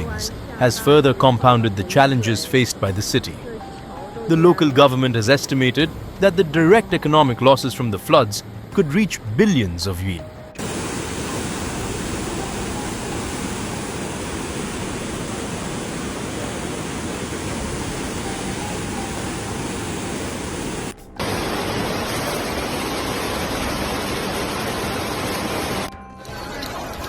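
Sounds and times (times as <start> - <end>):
floodwater rushing: 10.6 - 25.9.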